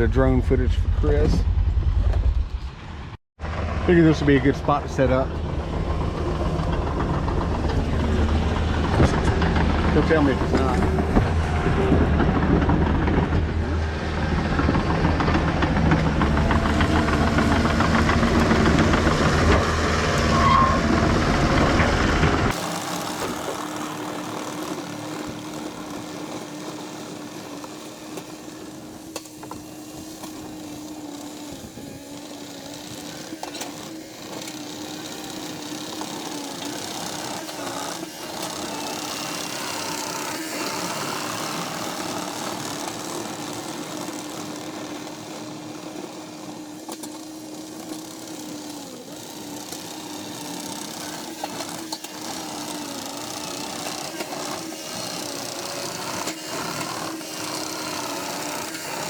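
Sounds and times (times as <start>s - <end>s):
drone propeller whine: 0.0s - 47.2s.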